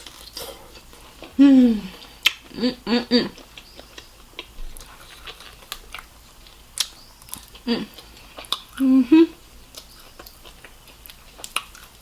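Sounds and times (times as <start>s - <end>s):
person humming mm: 1.4s - 2.0s, 7.6s - 8.0s, 8.8s - 9.4s
chewing mouth clicks and smacks: 3.4s - 8.8s, 9.7s - 12.0s.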